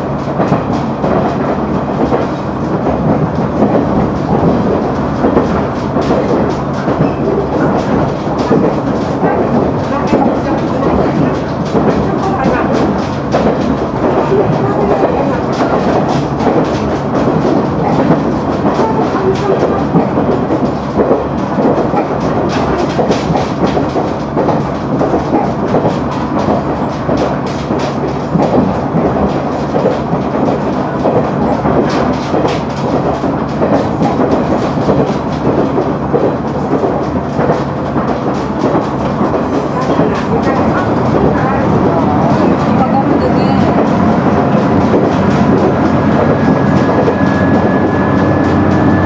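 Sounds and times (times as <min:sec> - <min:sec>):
wheels rumbling on rail: 0:00.0 - 0:49.0
low diesel engine hum: 0:39.2 - 0:49.0.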